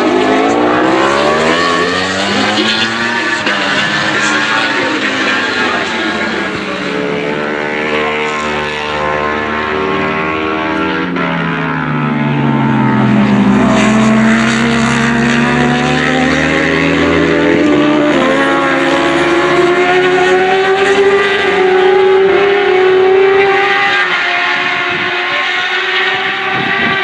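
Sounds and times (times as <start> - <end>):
racing motorcycle engine: 0.0 - 27.0.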